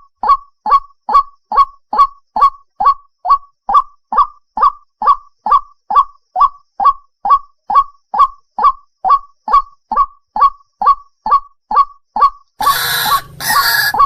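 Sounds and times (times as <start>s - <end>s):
waterhen calling: 12.6s - 14.0s.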